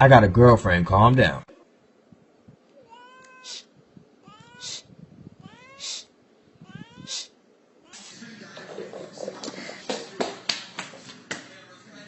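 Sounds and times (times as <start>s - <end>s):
cat meowing: 2.8s - 8.1s.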